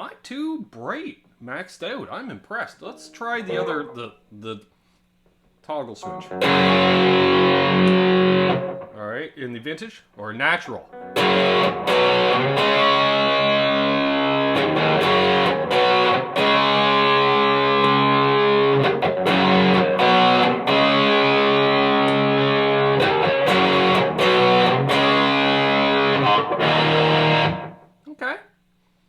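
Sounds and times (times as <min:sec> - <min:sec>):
distorted electric guitar chords: 0:06.0 - 0:08.9, 0:10.9 - 0:27.9.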